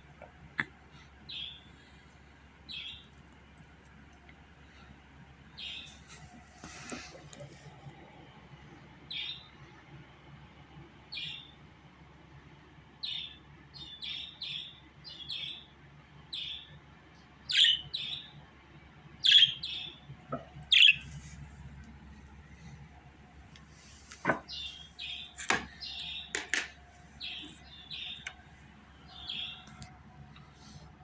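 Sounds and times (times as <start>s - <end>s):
budgerigar chirping: 17.5s - 18.3s, 19.2s - 20.0s, 20.6s - 21.1s.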